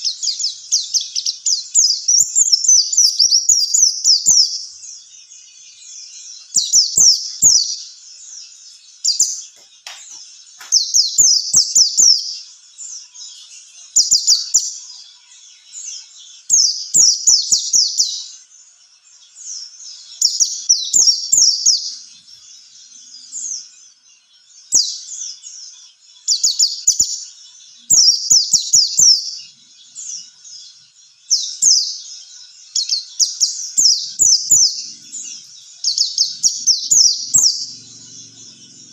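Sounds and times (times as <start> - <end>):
bird twittering song: 0.0 - 38.9.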